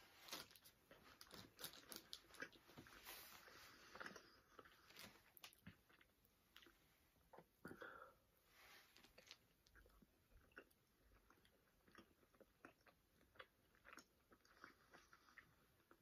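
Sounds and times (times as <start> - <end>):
people chewing: 0.3 - 6.8.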